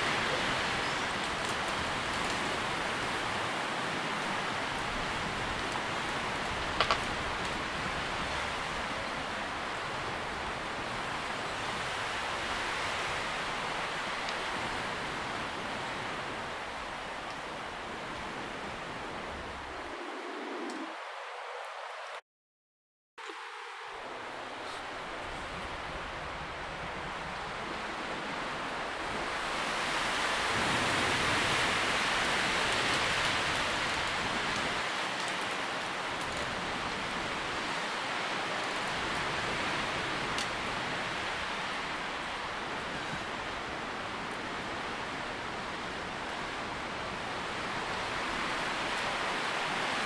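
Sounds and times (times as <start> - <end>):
wind rustling tree leaves: 0.0 - 22.2, 23.2 - 50.0.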